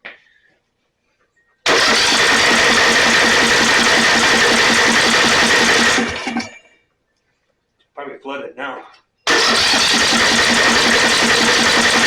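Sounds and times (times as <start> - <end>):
electric starter cranking engine: 1.7 - 6.5, 9.3 - 12.0.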